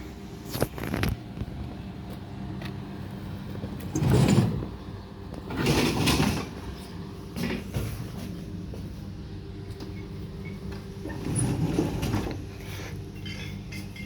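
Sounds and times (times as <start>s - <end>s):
electric train hum: 0.0s - 14.0s.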